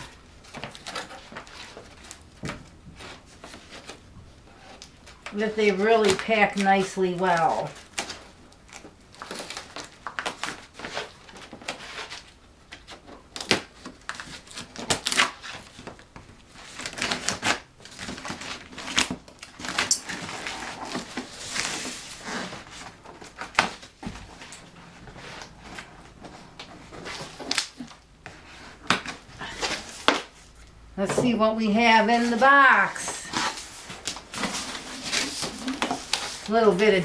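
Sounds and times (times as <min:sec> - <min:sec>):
cardboard box being handled: 0:32.2 - 0:36.8.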